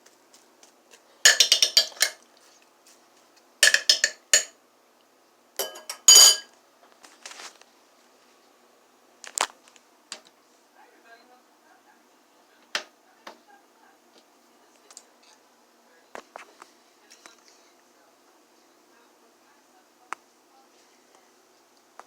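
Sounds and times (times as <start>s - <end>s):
metal utensil clinking on dish: 1.3s - 2.2s, 3.6s - 4.5s, 5.6s - 6.5s.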